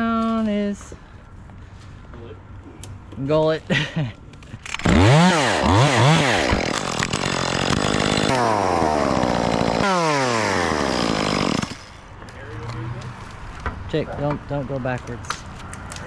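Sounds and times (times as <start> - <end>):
chainsaw revving and cutting wood: 4.7 - 12.1.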